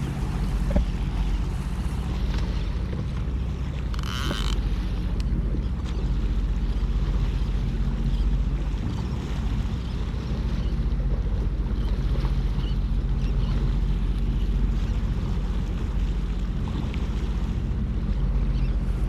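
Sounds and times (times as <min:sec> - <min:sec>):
jet ski engine running: 0:00.0 - 0:19.0
water noise: 0:00.0 - 0:19.0.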